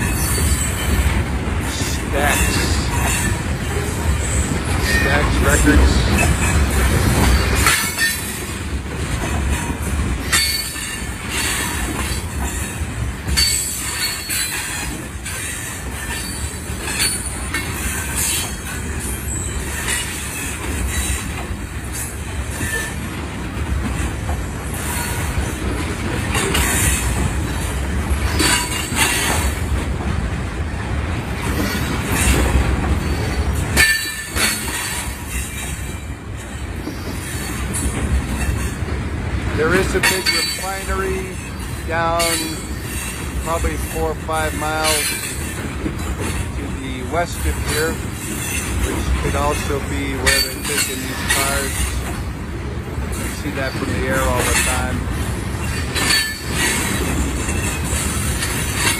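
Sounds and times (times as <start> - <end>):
freight train rumbling past: 0.0 - 58.9
wheels clicking over rail joints: 0.0 - 58.9
wheel squeals: 9.2 - 23.1, 47.7 - 52.2.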